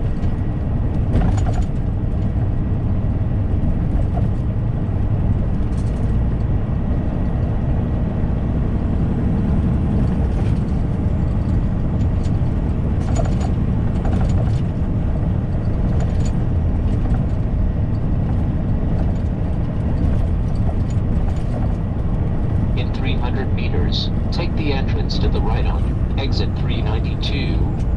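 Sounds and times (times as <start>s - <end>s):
road and tyre noise: 0.0s - 27.9s
truck engine drone: 0.0s - 27.9s
faint rattles: 10.3s - 22.8s.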